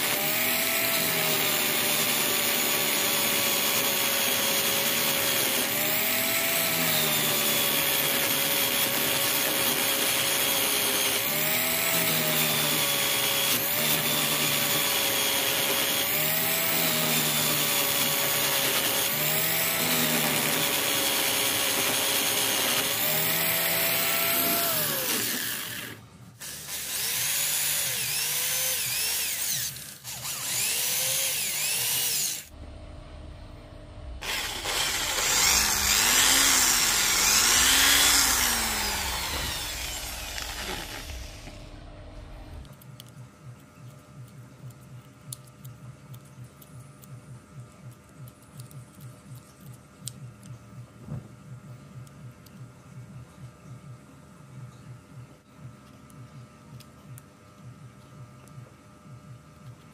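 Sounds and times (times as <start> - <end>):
power tool motor whining: 0.0 - 32.5, 34.2 - 42.6.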